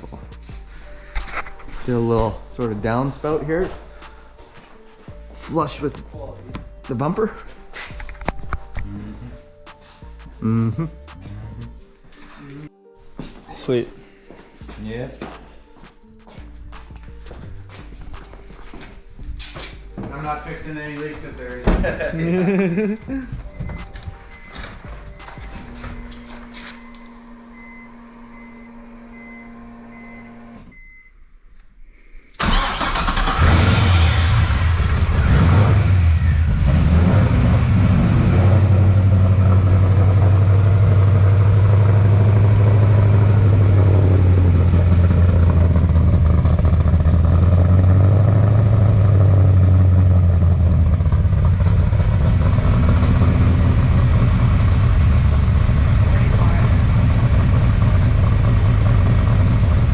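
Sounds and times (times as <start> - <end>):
car engine starting and idling: 19.4 - 31.0, 32.4 - 59.9
faint beeping: 24.2 - 31.2.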